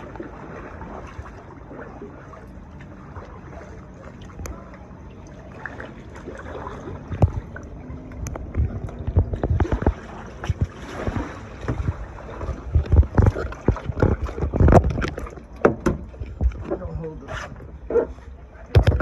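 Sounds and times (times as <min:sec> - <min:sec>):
paddle splashing in water: 0:00.0 - 0:19.0
wind buffeting microphone: 0:06.9 - 0:17.8
paddle knocking against kayak: 0:07.0 - 0:16.8, 0:18.7 - 0:19.0.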